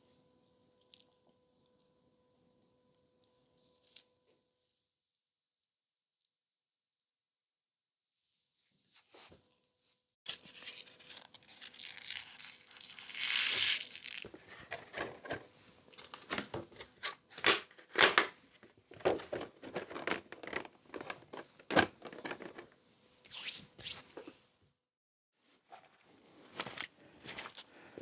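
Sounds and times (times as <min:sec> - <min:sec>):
packaging tearing and crinkling: 0:10.3 - 0:15.4, 0:16.0 - 0:18.3.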